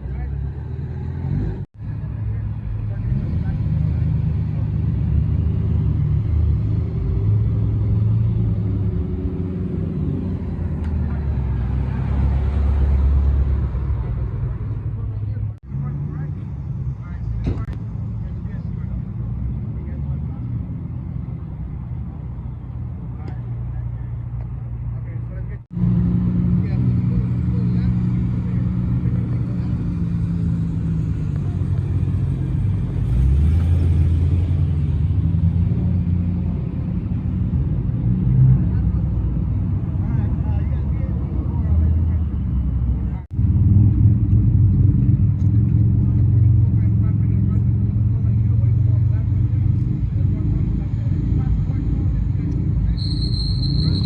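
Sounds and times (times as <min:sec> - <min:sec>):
car engine rumbling: 0:00.0 - 0:54.0.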